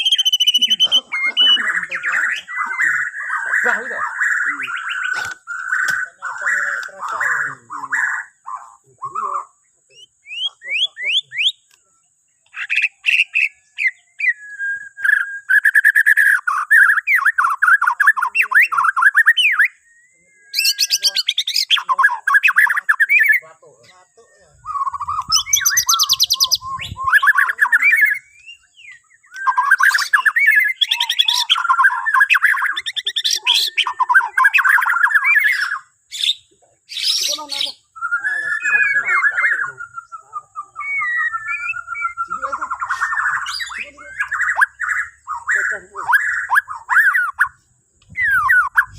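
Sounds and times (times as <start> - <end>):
songbird singing whistles and trills: 0.0 - 48.9.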